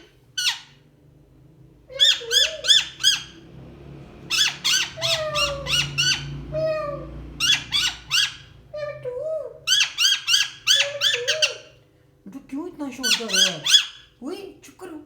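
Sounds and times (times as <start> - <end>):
parrot squawking shrilly: 0.0 - 0.8, 1.9 - 3.4, 4.3 - 8.9, 9.6 - 11.8, 13.0 - 14.1.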